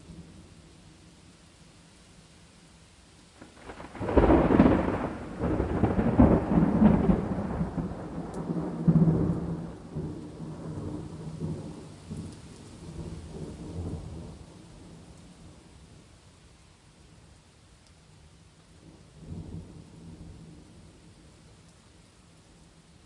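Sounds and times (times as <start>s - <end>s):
rain hissing: 0.0s - 23.0s
thunder crack and rumble: 3.4s - 14.5s.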